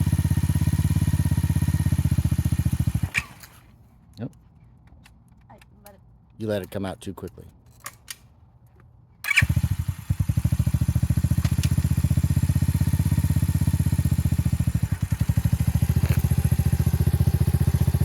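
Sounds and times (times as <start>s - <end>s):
motorcycle engine starting and idling: 0.0s - 3.7s, 9.2s - 18.0s.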